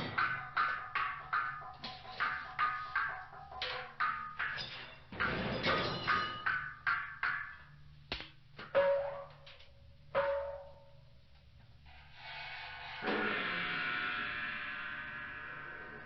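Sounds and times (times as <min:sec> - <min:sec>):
sharp ringing metal strikes: 0:00.0 - 0:07.6, 0:10.1 - 0:11.0.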